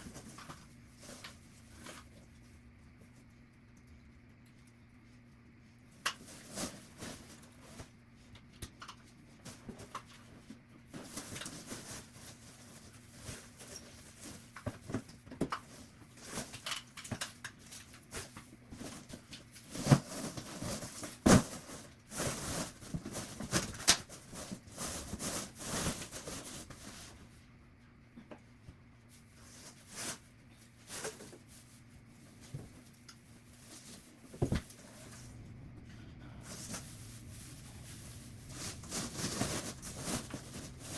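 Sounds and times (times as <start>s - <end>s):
rustling: 15.7s - 27.3s, 29.1s - 35.4s, 36.4s - 40.9s
objects handled and set down: 33.7s - 35.3s.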